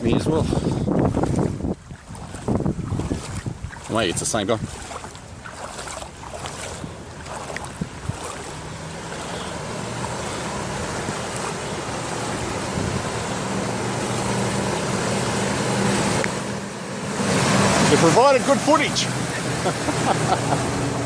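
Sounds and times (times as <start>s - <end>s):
low engine hum: 0.0s - 21.0s
water rushing: 0.0s - 21.0s.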